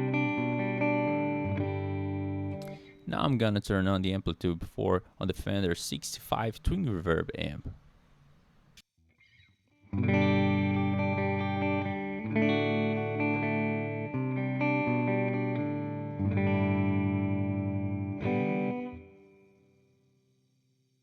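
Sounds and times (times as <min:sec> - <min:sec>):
electric guitar chords: 0:00.0 - 0:03.1, 0:09.8 - 0:20.0.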